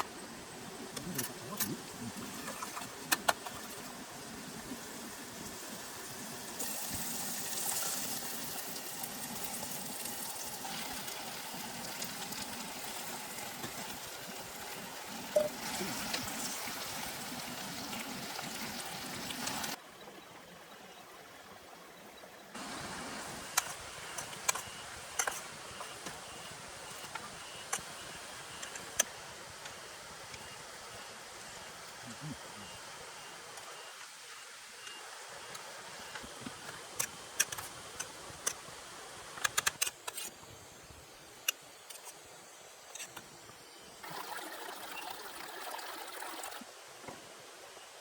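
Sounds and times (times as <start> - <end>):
steady rain falling: 0.0 - 19.8, 22.5 - 39.5.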